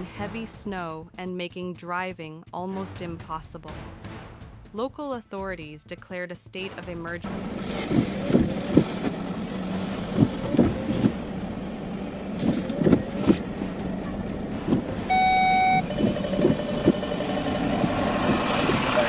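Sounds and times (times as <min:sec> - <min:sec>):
vehicle traffic: 0:07.2 - 0:19.0
loud single-pitch beep: 0:15.1 - 0:18.6.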